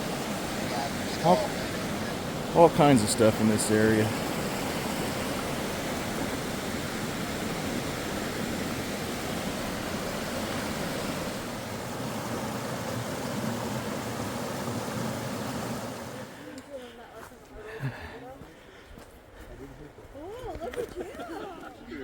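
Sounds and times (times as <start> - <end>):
falling water rushing: 0.0 - 16.4.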